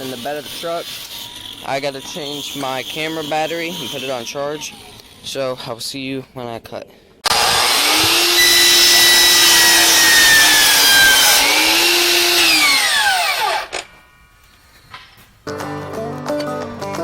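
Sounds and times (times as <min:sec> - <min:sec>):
power saw cutting wood: 0:00.0 - 0:05.4, 0:07.2 - 0:13.9.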